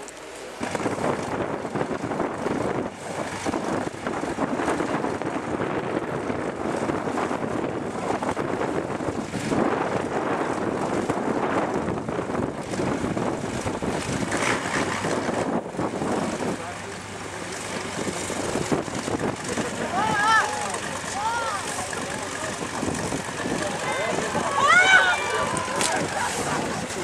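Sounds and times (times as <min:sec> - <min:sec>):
wind buffeting microphone: 0:00.0 - 0:27.0
diesel truck engine working: 0:10.5 - 0:27.0.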